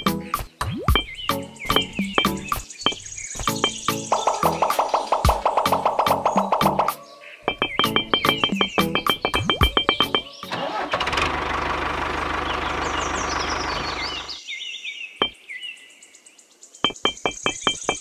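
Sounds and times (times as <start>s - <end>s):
plucked light music: 0.0s - 2.7s, 3.4s - 10.5s
birds chirping: 0.0s - 18.0s
small tractor engine putter: 9.9s - 14.4s.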